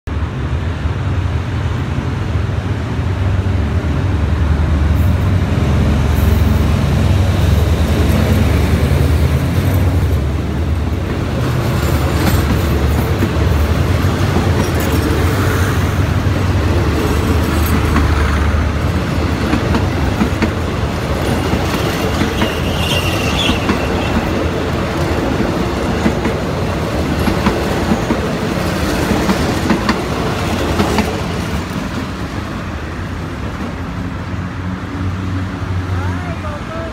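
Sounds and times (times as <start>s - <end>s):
locomotive engine drone: 0.1s - 36.9s
train wheels clicking over rail joints: 7.9s - 32.3s
high wheel squeal: 21.3s - 24.4s.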